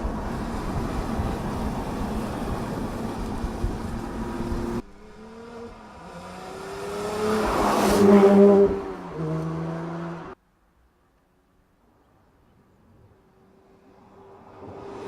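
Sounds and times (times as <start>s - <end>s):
car engine and road noise: 0.0s - 10.4s, 13.0s - 15.0s
car engine passing: 0.0s - 10.4s.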